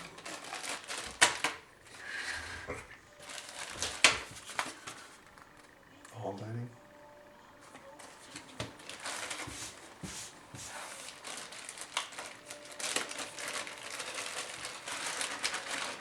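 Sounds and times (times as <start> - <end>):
packaging crinkling and rustling: 0.0 - 1.6, 3.2 - 5.7, 8.3 - 16.0.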